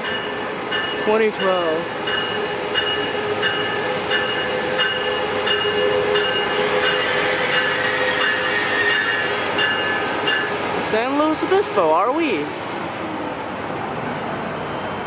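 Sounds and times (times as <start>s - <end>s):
locomotive bell dinging: 0.0s - 10.6s
train running with high squeal: 0.0s - 11.9s, 14.0s - 15.0s.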